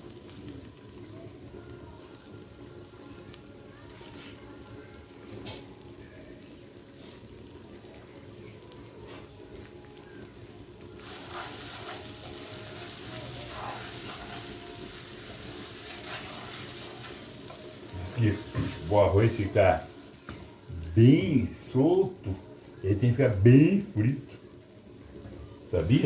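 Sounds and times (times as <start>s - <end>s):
rice sizzling in oil: 0.0s - 26.0s
spoon scraping pan: 11.0s - 14.8s, 15.5s - 18.8s.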